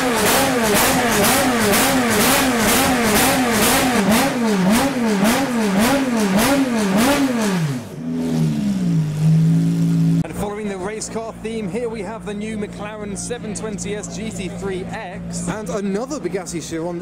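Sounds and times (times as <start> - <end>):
race car engine revving: 0.0 - 11.7
engine idling: 0.0 - 15.6.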